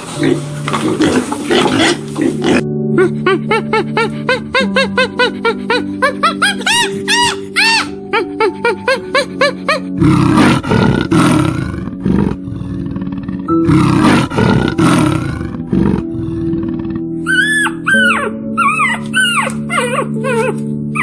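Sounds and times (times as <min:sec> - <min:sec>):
soft background music: 0:00.0 - 0:21.0
leopard roaring: 0:10.0 - 0:17.2.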